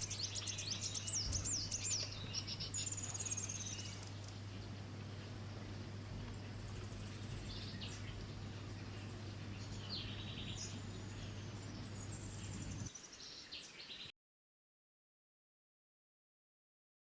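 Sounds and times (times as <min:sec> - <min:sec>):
steady low hum: 0:00.0 - 0:12.9
songbirds chirping and trilling: 0:00.0 - 0:14.1.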